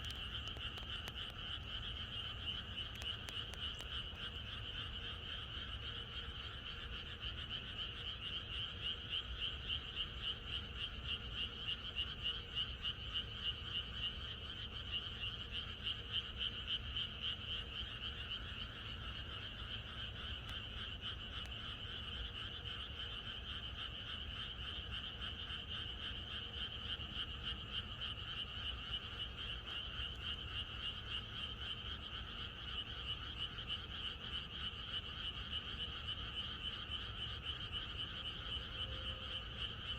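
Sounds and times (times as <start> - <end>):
frogs croaking chorus: 0.0 - 39.9.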